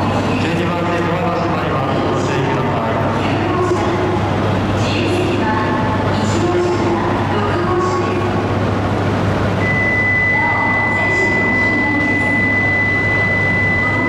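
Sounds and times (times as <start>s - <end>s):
train rumble with low hum: 0.0s - 14.0s
high-pitched tone: 9.6s - 14.0s.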